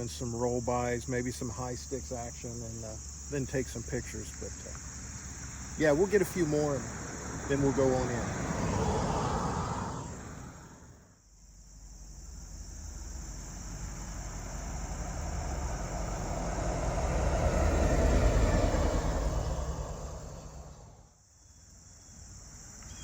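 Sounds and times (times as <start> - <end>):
vehicle engine rumble: 0.0 - 11.1, 11.8 - 21.2
car passing: 2.6 - 11.2, 12.2 - 21.2.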